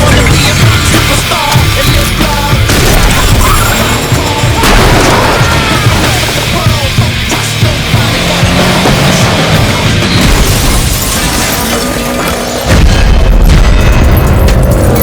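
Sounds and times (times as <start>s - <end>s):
action soundtrack music: 0.0s - 15.0s
crash and impact effects: 2.6s - 15.0s
heavy deep boom: 4.6s - 6.4s.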